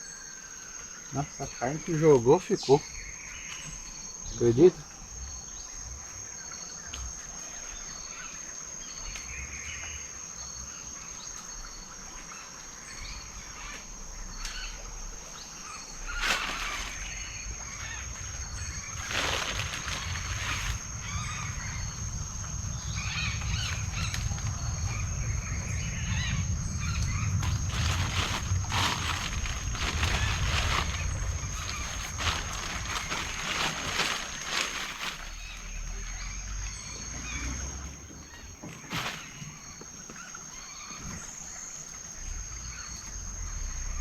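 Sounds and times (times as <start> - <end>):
bird calls: 0.0 - 44.0
insects buzzing: 0.0 - 44.0
low rumble: 12.9 - 38.1.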